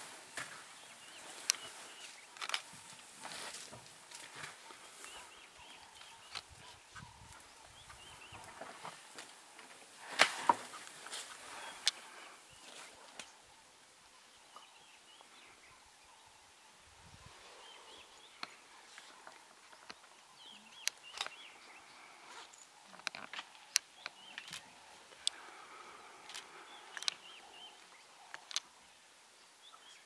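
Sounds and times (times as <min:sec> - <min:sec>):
bush ambience: 0:00.0 - 0:30.0
faint chirping bird calls: 0:00.5 - 0:09.7, 0:10.6 - 0:30.0.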